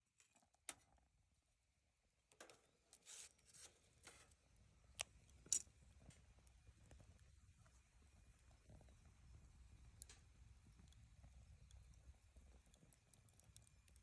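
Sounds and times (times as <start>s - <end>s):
bonfire crackling and popping: 8.3s - 14.0s.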